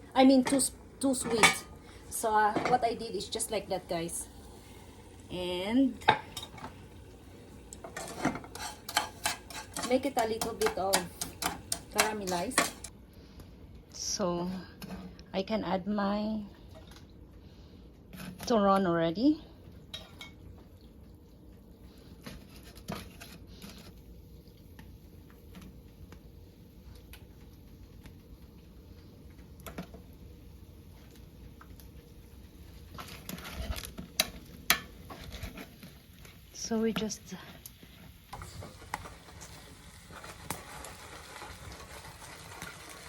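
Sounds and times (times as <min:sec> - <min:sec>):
low steady hum: 0:00.0 - 0:43.0
spring rolls sizzling in oil: 0:00.2 - 0:12.9, 0:37.9 - 0:43.0
food frying with pops and ticks: 0:05.2 - 0:12.9, 0:24.2 - 0:43.0.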